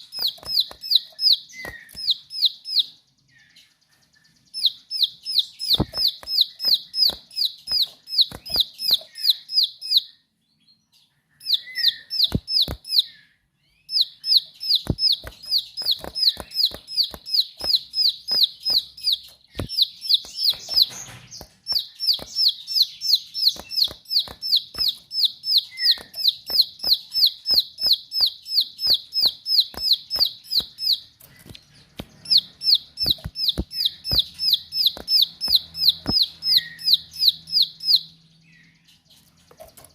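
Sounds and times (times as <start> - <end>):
sharp clicks: 0.0 - 2.5, 5.6 - 9.3, 12.1 - 13.1, 14.2 - 37.1
prinia singing rapid high notes: 4.3 - 10.2, 11.4 - 13.2, 13.8 - 38.2.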